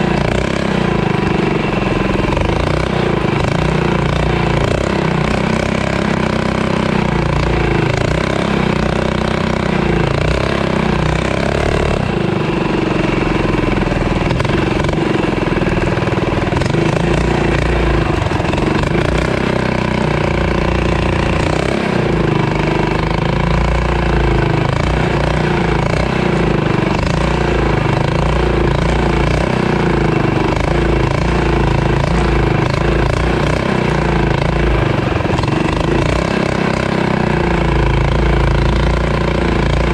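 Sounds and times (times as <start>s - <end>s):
mini bike engine revving: 0.0s - 39.9s.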